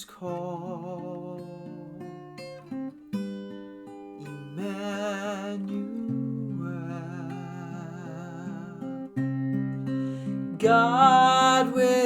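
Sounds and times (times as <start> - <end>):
acoustic guitar: 0.0 - 12.0
person singing long notes: 10.5 - 12.0.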